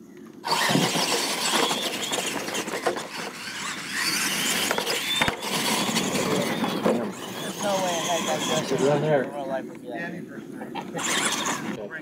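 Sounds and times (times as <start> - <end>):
electric motors whining: 0.2 - 11.8
tyres churning dirt: 0.3 - 9.7, 10.4 - 12.0
toy trucks landing knocks: 0.4 - 7.5.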